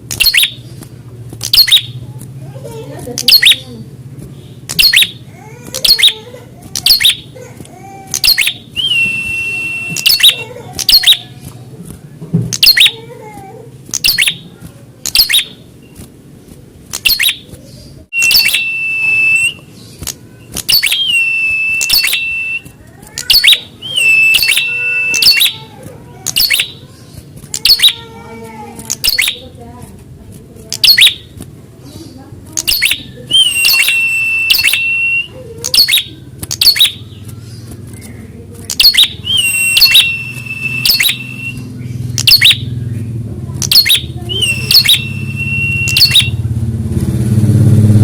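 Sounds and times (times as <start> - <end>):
bird calling sharp high notes: 0.1 - 0.7, 1.4 - 2.0, 3.2 - 3.8, 4.7 - 6.2, 6.8 - 7.4, 8.1 - 11.3, 12.6 - 13.0, 14.0 - 14.5, 15.1 - 15.7, 17.0 - 17.5, 18.1 - 28.2, 28.8 - 29.5, 30.7 - 31.3, 32.6 - 37.7, 38.7 - 42.8, 43.6 - 46.5
bird trill: 0.1 - 0.7, 1.4 - 2.0, 3.2 - 3.8, 4.7 - 6.2, 6.8 - 7.4, 8.1 - 11.3, 12.6 - 13.0, 13.9 - 16.0, 17.0 - 28.2, 28.8 - 29.6, 30.7 - 31.3, 31.9 - 46.5.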